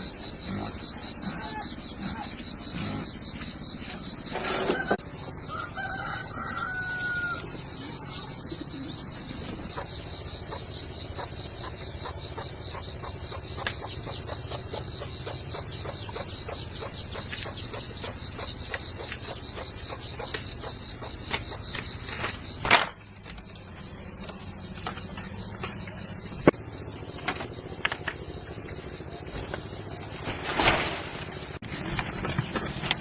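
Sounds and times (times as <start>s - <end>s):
rooster crowing: 4.8s - 7.6s.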